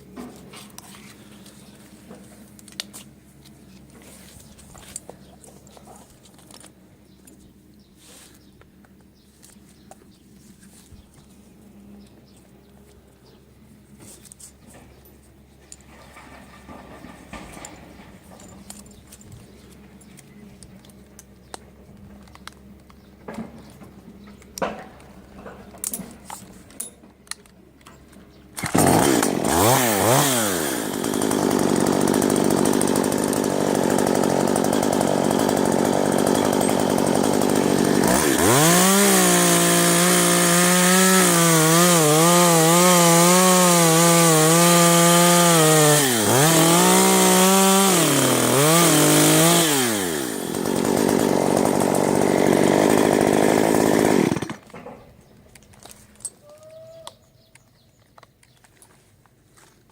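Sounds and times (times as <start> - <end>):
chainsaw revving: 28.6 - 54.7.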